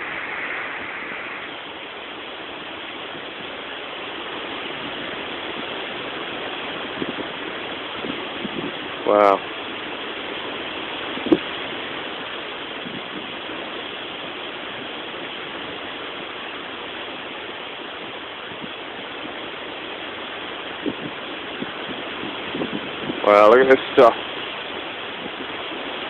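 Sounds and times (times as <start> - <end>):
wind on microphone: 0.0 - 26.0
thunderstorm rushing: 4.7 - 9.4, 20.8 - 23.4.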